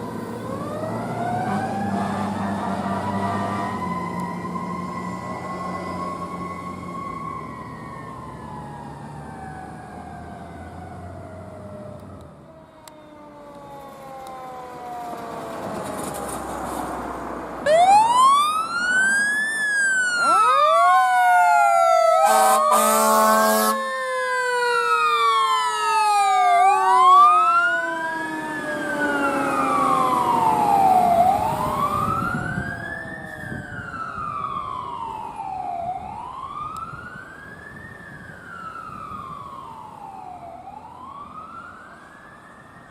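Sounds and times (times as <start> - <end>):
falling siren tone: 0.0 - 42.9
electronic wail siren: 0.1 - 16.3, 17.6 - 42.9
mechanical siren winding down: 17.7 - 42.9
horn blast: 22.2 - 23.8.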